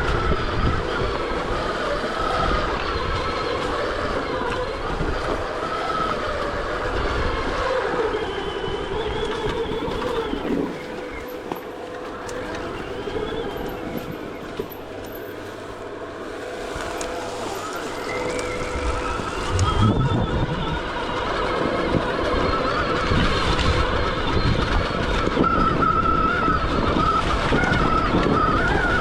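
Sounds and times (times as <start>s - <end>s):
rough rumble: 0.0s - 24.0s
electric motorbike motor whining: 0.0s - 29.0s.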